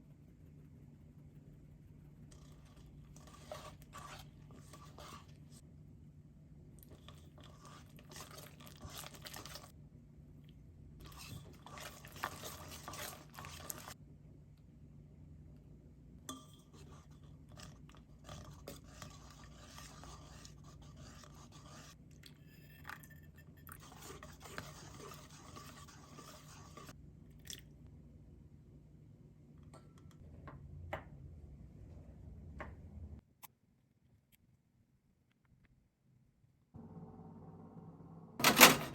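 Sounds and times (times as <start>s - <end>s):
faint low hum: 0.0s - 8.4s
utensil scraping in a bowl: 2.0s - 5.6s, 6.9s - 9.7s, 11.0s - 14.0s, 16.5s - 27.0s.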